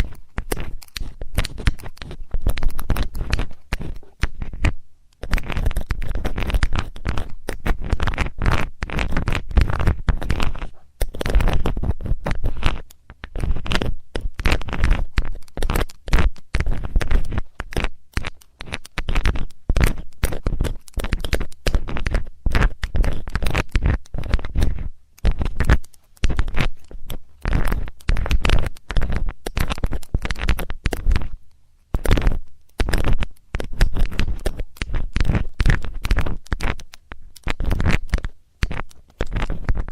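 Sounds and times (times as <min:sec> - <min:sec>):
metal tool scraping microphone: 0:00.0 - 0:15.7.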